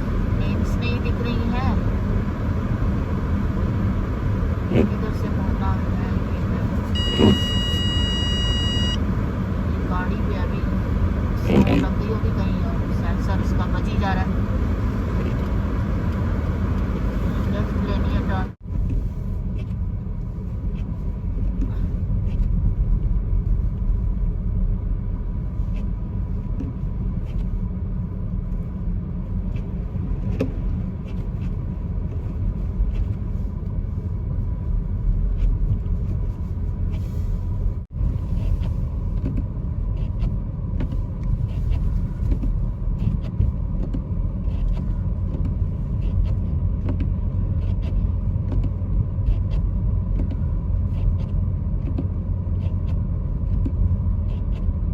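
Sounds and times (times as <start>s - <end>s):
road and engine rumble: 0.0s - 54.9s
faint high tone: 7.0s - 9.0s.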